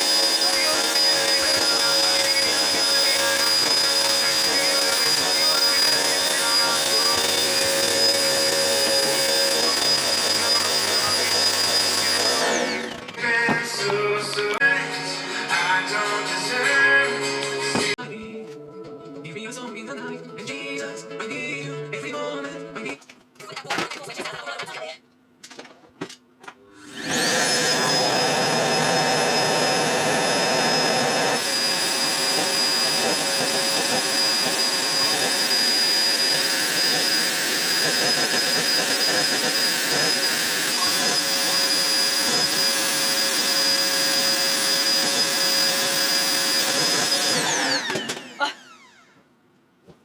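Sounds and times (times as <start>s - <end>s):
vacuum cleaner running: 0.0s - 14.7s, 26.7s - 49.3s.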